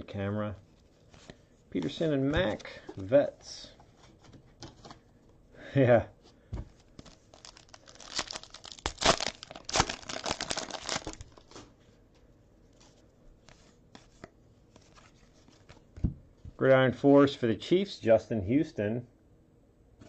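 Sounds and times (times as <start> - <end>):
foil wrapper tearing and crinkling: 7.0 - 11.6.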